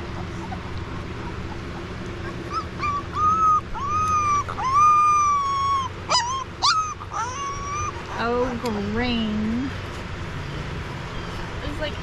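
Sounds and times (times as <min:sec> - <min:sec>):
puppy whining: 0:00.0 - 0:08.6
steady low hum: 0:00.0 - 0:12.0.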